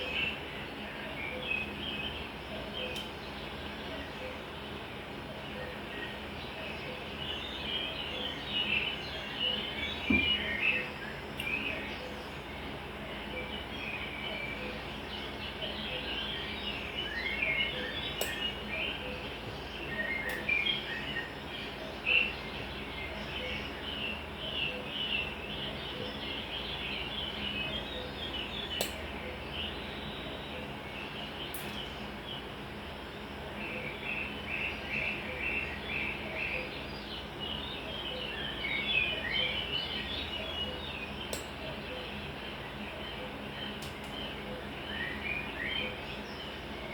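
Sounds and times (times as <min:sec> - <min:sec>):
small birds chirping: 0:00.0 - 0:46.9
faint sharp click: 0:18.2 - 0:18.4, 0:28.8 - 0:29.0, 0:41.3 - 0:41.5.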